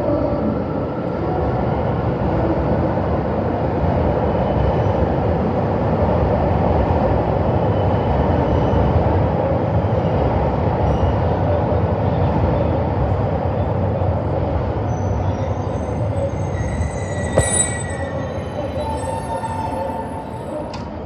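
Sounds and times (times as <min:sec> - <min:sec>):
train running noise: 0:00.0 - 0:21.0.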